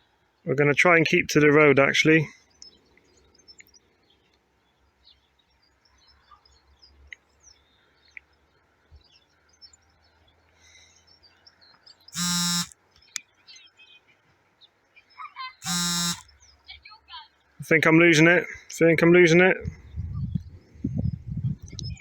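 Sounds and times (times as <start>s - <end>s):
faint birds chirping: 0.0s - 22.0s
loud electronic buzzing tone: 12.2s - 12.7s, 15.6s - 16.3s.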